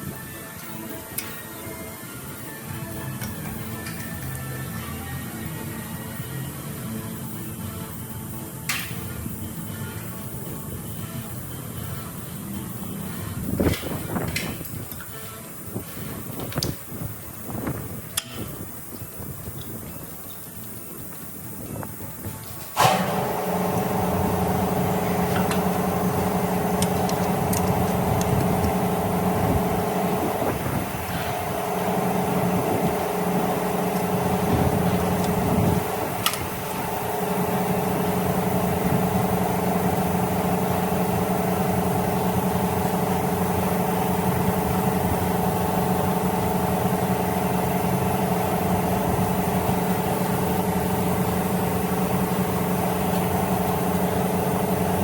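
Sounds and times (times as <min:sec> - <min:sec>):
sharp click: 0:08.7 - 0:09.1, 0:18.1 - 0:18.6
car engine running: 0:22.8 - 0:55.0.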